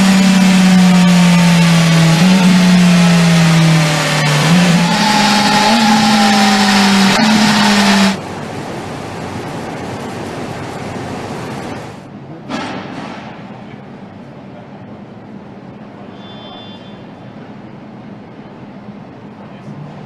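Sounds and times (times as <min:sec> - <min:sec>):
motorcycle engine revving: 0:00.0 - 0:08.3
steady rushing noise: 0:00.0 - 0:12.2.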